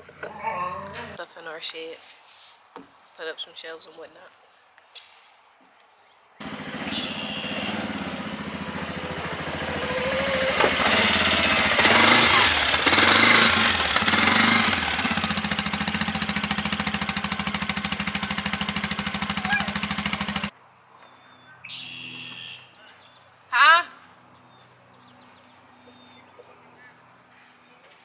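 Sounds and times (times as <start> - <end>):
motor running with fast rattle: 6.4 - 20.5.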